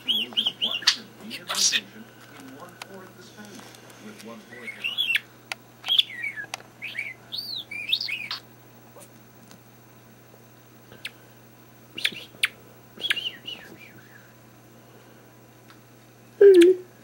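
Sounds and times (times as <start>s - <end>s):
bird chirping: 0.0s - 2.0s, 4.5s - 8.5s, 12.0s - 14.3s.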